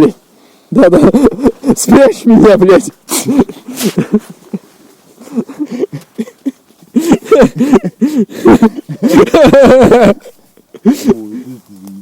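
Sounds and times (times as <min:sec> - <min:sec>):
person laughing: 0:00.8 - 0:02.0, 0:03.1 - 0:11.4.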